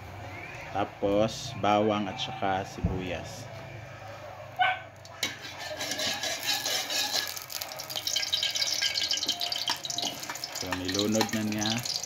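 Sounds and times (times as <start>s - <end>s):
garlic and onions sizzling in oil: 5.2s - 12.0s.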